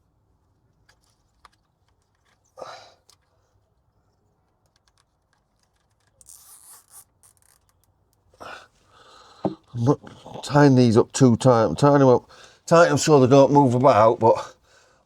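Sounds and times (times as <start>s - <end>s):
cable tie ratcheting clicks: 4.6s - 8.2s.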